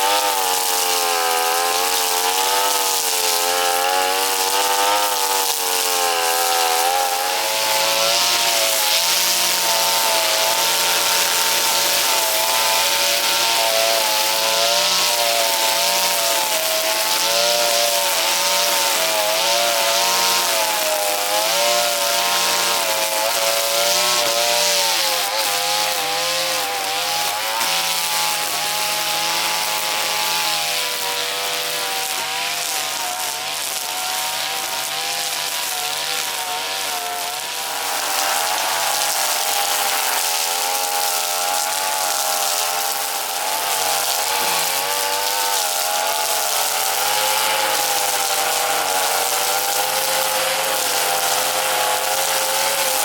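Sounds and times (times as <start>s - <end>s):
brush cutter engine cutting grass: 0.0s - 53.0s.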